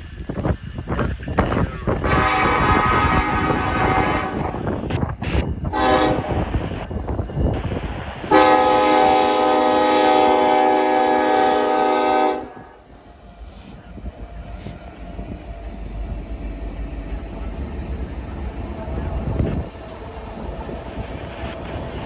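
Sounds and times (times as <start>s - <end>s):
passing train rumble: 0.0s - 22.0s
locomotive air horn: 2.0s - 4.6s, 5.7s - 6.4s, 8.3s - 12.8s.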